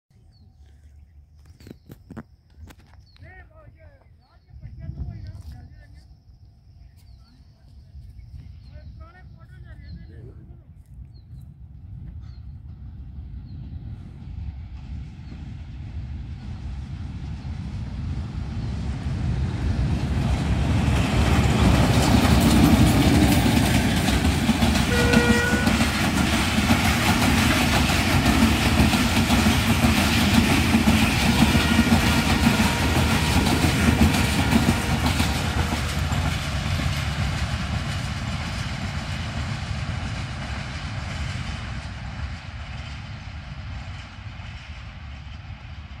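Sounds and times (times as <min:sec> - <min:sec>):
train locomotive passing: 0:11.6 - 0:46.0
train wheels on rails: 0:11.6 - 0:46.0
train horn blast: 0:24.8 - 0:26.0, 0:31.3 - 0:35.7.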